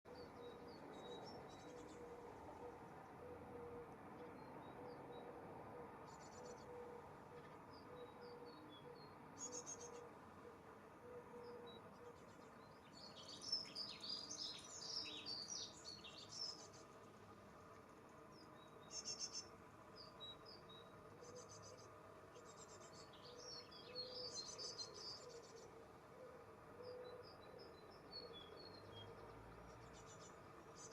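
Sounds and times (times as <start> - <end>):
small birds chirping: 0.1 - 30.9
buzzy bird trills: 9.0 - 10.0, 18.8 - 19.5, 21.2 - 25.7.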